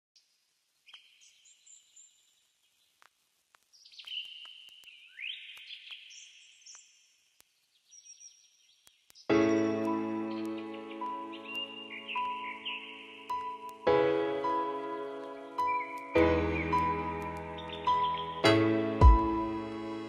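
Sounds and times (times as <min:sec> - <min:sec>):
high-pitched birdsong chirps: 0:03.7 - 0:13.8, 0:14.8 - 0:19.4.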